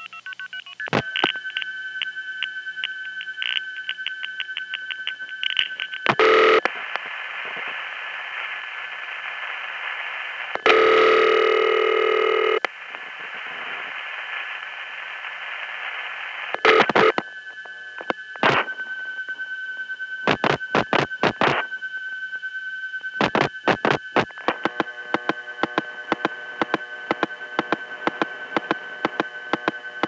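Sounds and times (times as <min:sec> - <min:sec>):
steady telephone tone: 0:00.0 - 0:12.7, 0:13.3 - 0:30.0
telephone line hiss: 0:00.0 - 0:30.0
telephone tone bursts: 0:01.0 - 0:06.7, 0:10.6 - 0:12.6, 0:16.6 - 0:22.9
telephone ringing: 0:06.0 - 0:06.6, 0:10.6 - 0:12.6.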